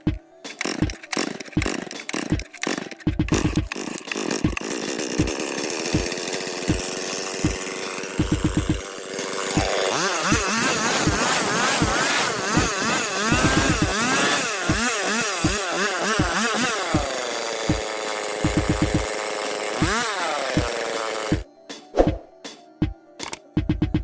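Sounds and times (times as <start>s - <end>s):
chainsaw engine revving: 0.5s - 21.4s
low regular beat: 3.1s - 3.7s, 6.7s - 8.8s, 9.6s - 14.0s, 17.7s - 19.1s, 23.6s - 24.0s.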